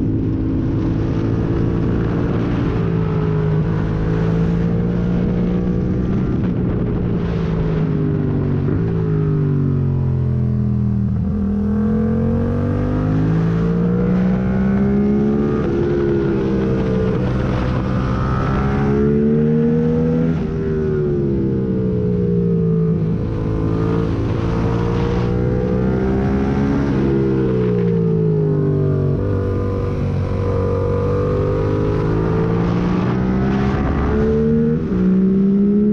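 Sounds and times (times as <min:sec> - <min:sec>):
motorcycle engine revving: 0:08.4 - 0:35.9.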